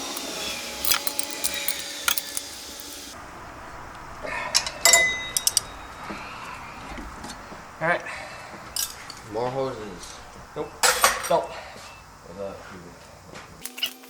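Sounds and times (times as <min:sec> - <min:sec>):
metal tools clinking: 0:00.0 - 0:03.2, 0:04.6 - 0:05.9, 0:08.7 - 0:09.3, 0:10.0 - 0:12.0.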